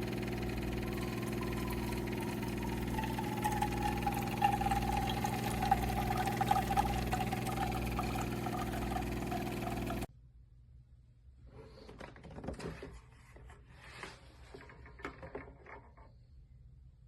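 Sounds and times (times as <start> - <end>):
coffee maker pump humming: 0.0 - 10.1
coffee pouring: 0.0 - 10.1.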